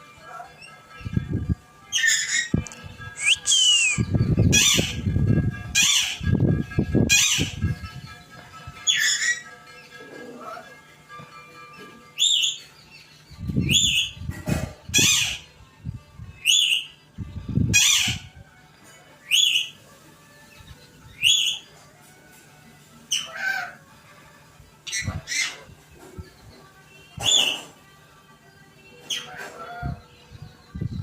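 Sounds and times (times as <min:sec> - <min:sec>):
parrot squawking: 0:01.9 - 0:05.1, 0:05.7 - 0:06.4, 0:07.1 - 0:07.7, 0:08.8 - 0:10.7, 0:12.2 - 0:12.7, 0:13.7 - 0:14.2, 0:14.9 - 0:15.5, 0:17.7 - 0:18.3, 0:19.3 - 0:19.8, 0:21.2 - 0:21.7, 0:23.1 - 0:23.8, 0:24.8 - 0:25.7.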